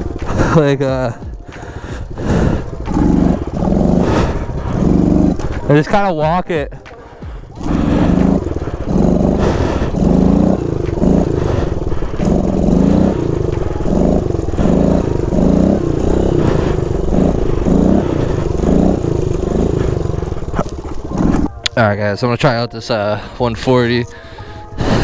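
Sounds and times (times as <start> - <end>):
pit bike engine revving: 0.0 - 25.0.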